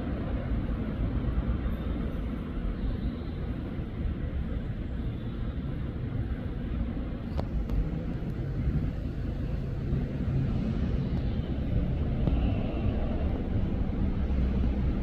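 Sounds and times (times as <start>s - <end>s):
train rumbling: 7.2s - 15.0s.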